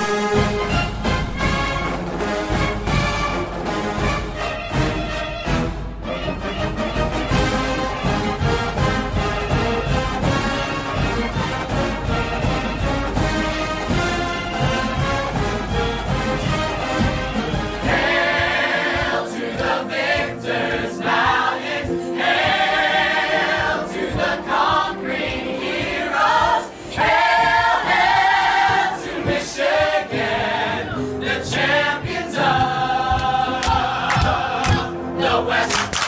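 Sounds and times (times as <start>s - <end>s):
choir singing with accompaniment: 0.0s - 36.0s.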